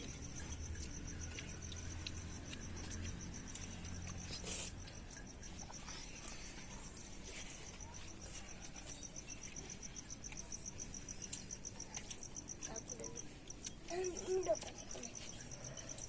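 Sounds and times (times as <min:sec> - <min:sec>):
cricket chirping: 0:00.0 - 0:16.0.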